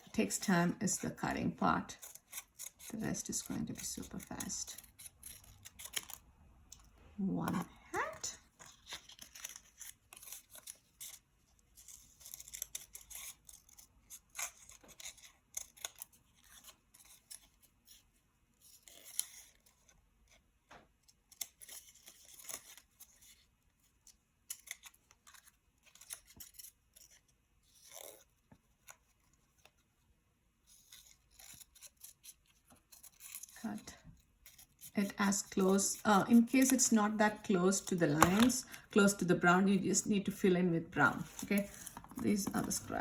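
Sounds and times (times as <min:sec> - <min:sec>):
scissors snipping paper: 0:01.9 - 0:06.2, 0:07.5 - 0:18.0, 0:18.6 - 0:29.8, 0:30.6 - 0:40.3, 0:41.1 - 0:43.0
paper rustling: 0:08.1 - 0:18.0, 0:30.6 - 0:39.2, 0:41.0 - 0:43.0.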